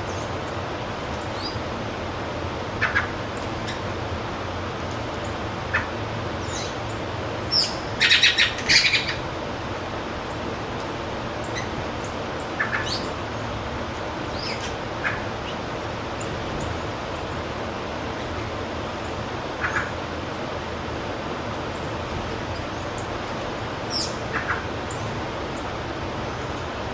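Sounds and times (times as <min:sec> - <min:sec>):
birds chirping: 0:00.0 - 0:02.0, 0:02.7 - 0:04.1, 0:04.8 - 0:09.4, 0:10.0 - 0:20.1, 0:21.5 - 0:26.9
steady background hiss: 0:00.0 - 0:26.9.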